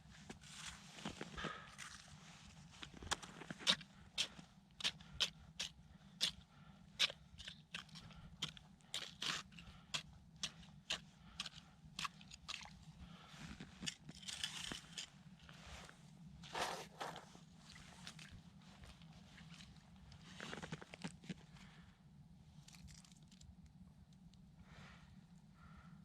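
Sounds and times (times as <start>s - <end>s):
footsteps crunching in snow: 15.5s - 20.9s.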